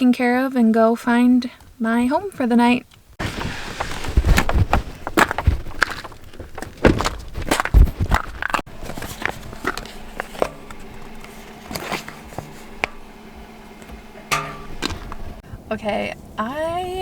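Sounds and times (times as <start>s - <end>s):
faint steady hum: 0.0s - 17.0s
footsteps in snow: 3.2s - 15.4s.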